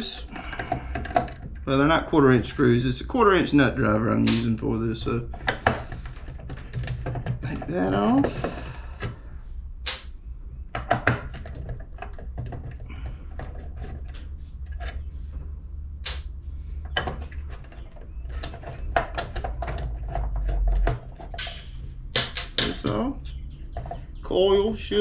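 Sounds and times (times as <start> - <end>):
steady low hum: 0.0 - 25.0
nut driver and metal parts clicking: 4.3 - 4.6, 9.9 - 10.1, 16.0 - 16.3, 20.8 - 23.0.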